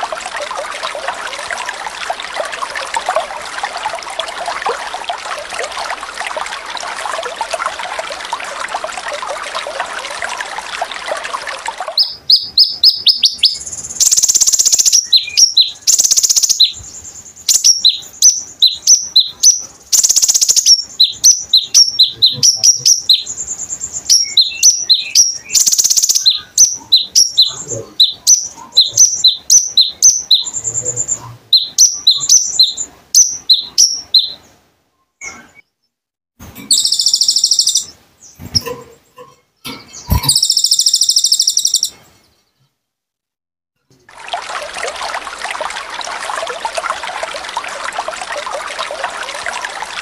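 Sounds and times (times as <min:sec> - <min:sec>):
sunbird chirping: 0:11.9 - 0:35.9, 0:36.6 - 0:38.7, 0:39.7 - 0:42.7.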